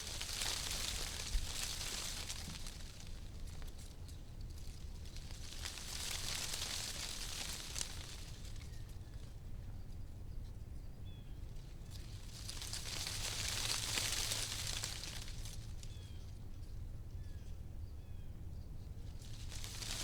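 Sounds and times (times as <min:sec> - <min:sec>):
wind rustling tree leaves: 0:00.0 - 0:09.3, 0:11.6 - 0:16.3, 0:19.0 - 0:20.0.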